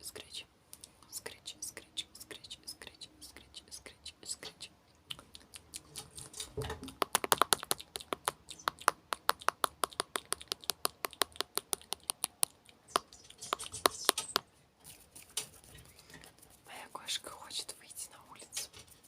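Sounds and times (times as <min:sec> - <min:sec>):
sharp clicking: 0:05.1 - 0:14.4.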